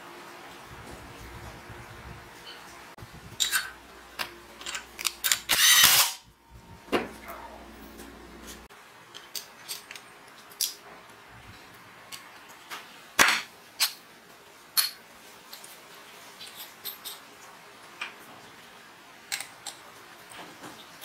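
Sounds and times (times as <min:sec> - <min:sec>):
electric drill whirring: 0:05.5 - 0:06.2.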